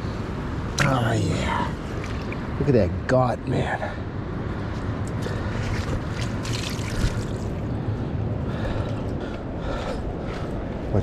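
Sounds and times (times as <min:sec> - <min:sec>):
river water sloshing and trickling: 0:00.5 - 0:02.8, 0:05.0 - 0:07.8
fish splashing: 0:01.8 - 0:02.6, 0:05.5 - 0:07.6.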